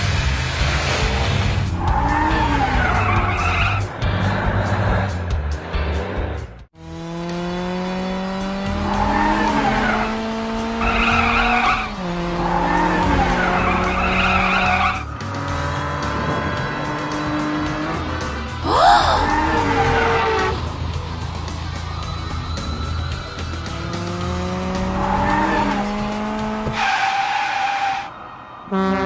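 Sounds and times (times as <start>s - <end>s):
tire squeals: 0.0s - 6.6s, 8.3s - 29.0s
cartoon engine revving: 18.6s - 20.8s.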